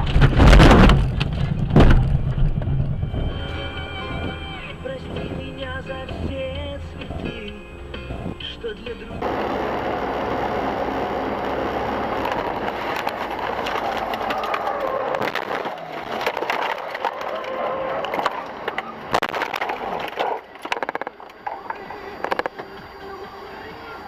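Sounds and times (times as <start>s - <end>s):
crunching clattering knocks: 0.0s - 3.5s, 11.9s - 22.7s
road and tyre noise: 0.0s - 24.0s.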